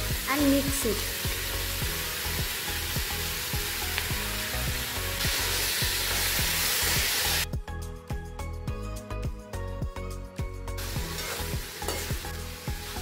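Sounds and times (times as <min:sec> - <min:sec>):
vegetables sizzling in a wok: 0:00.0 - 0:07.5, 0:10.8 - 0:13.0.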